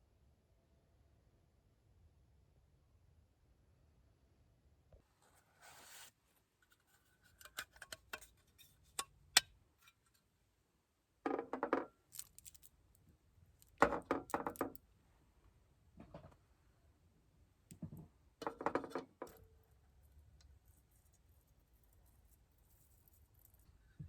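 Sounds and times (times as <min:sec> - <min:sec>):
sharp clicks of small objects: 0:12.1 - 0:12.7
clatter of small hard objects: 0:12.1 - 0:12.8, 0:13.6 - 0:14.8.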